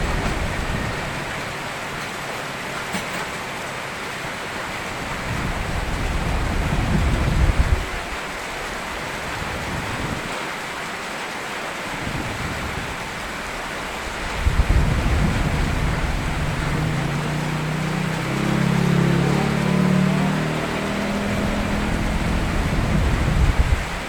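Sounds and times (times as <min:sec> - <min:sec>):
rain falling: 0:00.0 - 0:24.0
low engine-like hum: 0:13.6 - 0:24.0.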